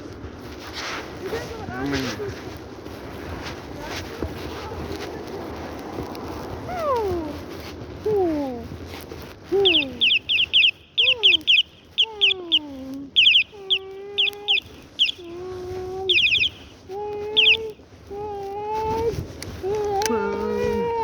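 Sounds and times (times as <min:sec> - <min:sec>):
high bird chirping: 0:09.5 - 0:15.4, 0:16.0 - 0:17.8.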